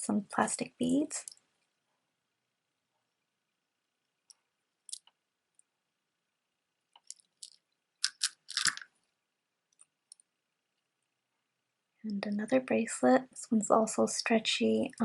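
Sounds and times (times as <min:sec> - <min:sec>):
plastic beads clicking and rattling: 0:07.0 - 0:08.9.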